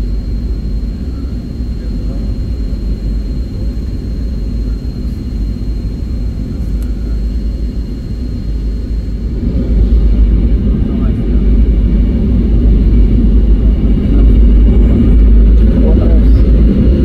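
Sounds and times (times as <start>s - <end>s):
airliner cabin engine rumble: 0.0s - 17.0s
faint high whine: 0.0s - 17.0s.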